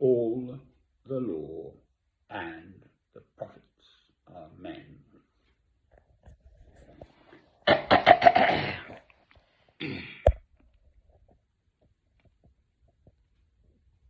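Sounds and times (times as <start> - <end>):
man coughing: 7.7 - 9.1, 9.8 - 10.4.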